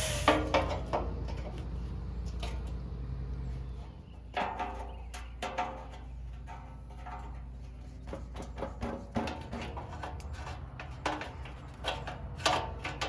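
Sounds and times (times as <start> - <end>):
hand tools on metal: 3.8 - 13.0.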